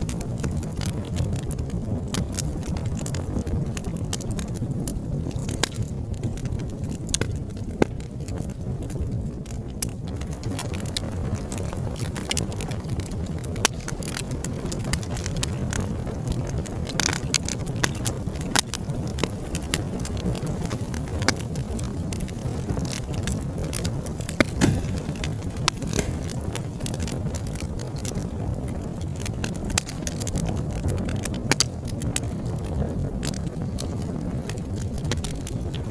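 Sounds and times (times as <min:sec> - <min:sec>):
wood fire crackling: 0:00.0 - 0:35.9.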